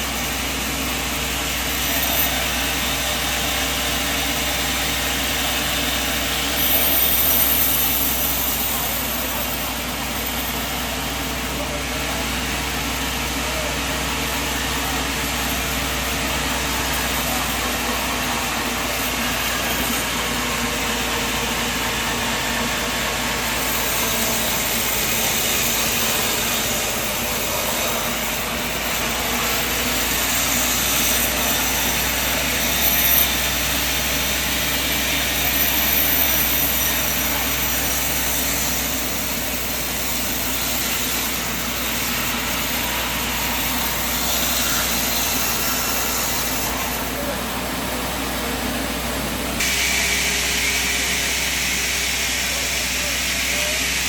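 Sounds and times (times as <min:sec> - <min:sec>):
sawmill machine droning: 0:00.0 - 0:54.0.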